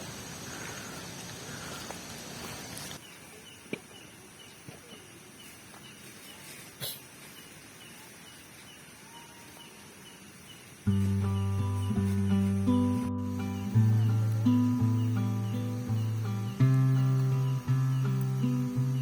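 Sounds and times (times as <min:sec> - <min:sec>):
faint outdoor hush: 0:00.0 - 0:19.0.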